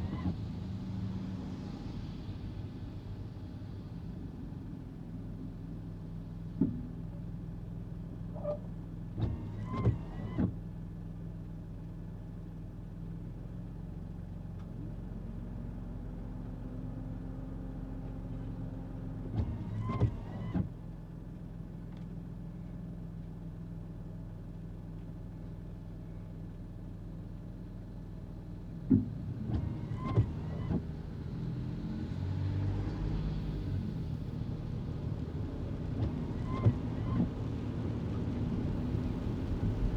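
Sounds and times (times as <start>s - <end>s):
car engine and road drone: 27.8s - 39.9s.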